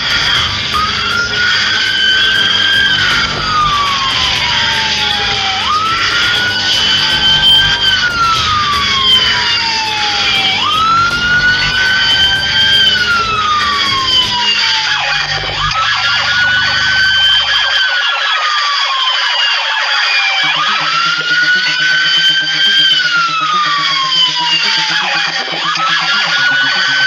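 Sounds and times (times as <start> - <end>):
low steady hum: 0.0 - 17.8
police siren wailing: 0.0 - 27.0.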